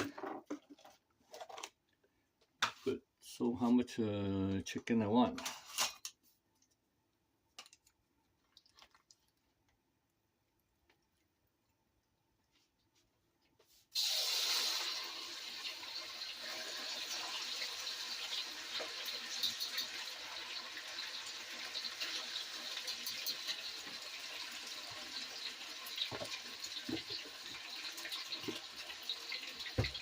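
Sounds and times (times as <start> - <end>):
meat sizzling in hot oil: 13.9 - 30.0.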